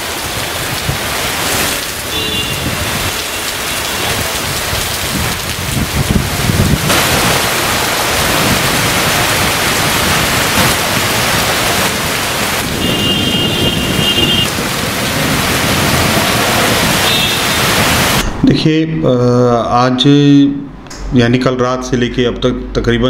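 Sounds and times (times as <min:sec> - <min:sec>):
heavy rain on a road: 0:00.0 - 0:18.2.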